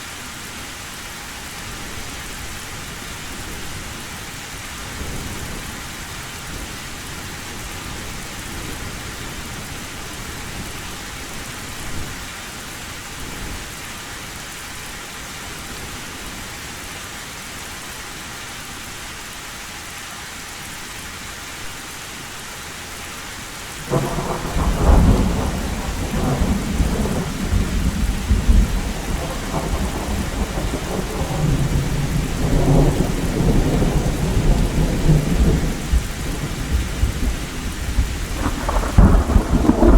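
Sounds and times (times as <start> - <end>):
heavy rain on a metal roof: 0.0 - 39.9
thunder rumbling: 23.8 - 39.9.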